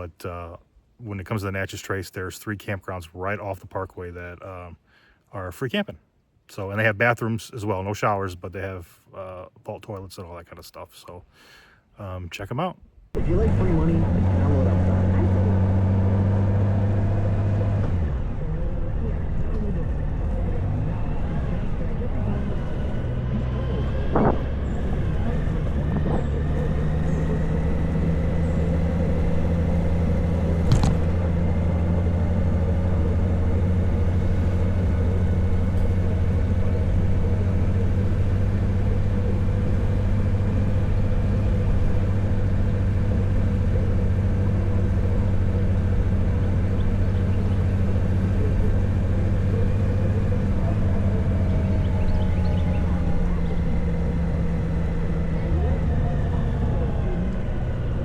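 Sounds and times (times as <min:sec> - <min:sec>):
motorcycle engine cruising: 0:13.2 - 0:58.0
wind and road noise: 0:13.2 - 0:58.0.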